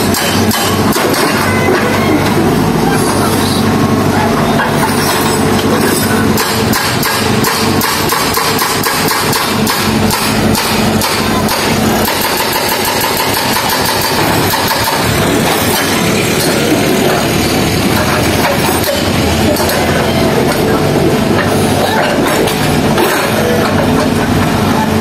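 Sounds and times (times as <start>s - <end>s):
heavy equipment engine running: 0.0s - 25.0s
rapid even pounding: 6.3s - 19.9s.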